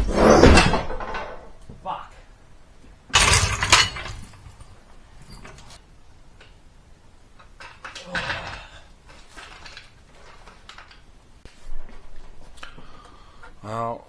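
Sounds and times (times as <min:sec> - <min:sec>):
metal clunks and scrapes: 0:00.0 - 0:01.8, 0:03.1 - 0:05.8.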